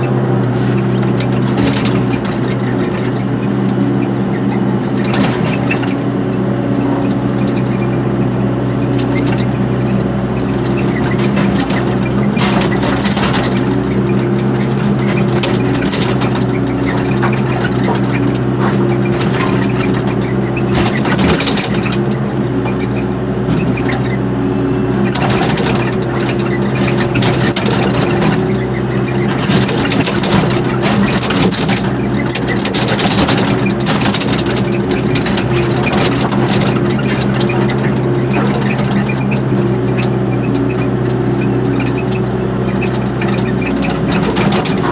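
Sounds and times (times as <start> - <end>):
excavator diesel engine running: 0.0 - 44.9
clattering bursts: 10.6 - 13.8, 14.6 - 22.9, 25.0 - 44.9.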